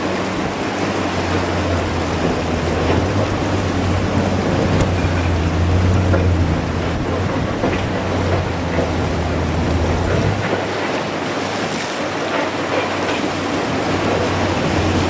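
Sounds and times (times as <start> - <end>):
wind buffeting microphone: 0.0 - 11.8
sea surf rushing: 0.0 - 15.0.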